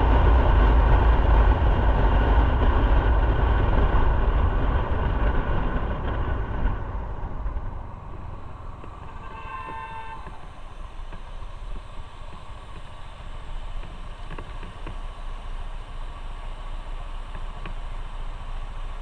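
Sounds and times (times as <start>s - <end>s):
motorcycle road rumble: 0.0s - 19.0s
vehicle horn: 8.9s - 11.0s.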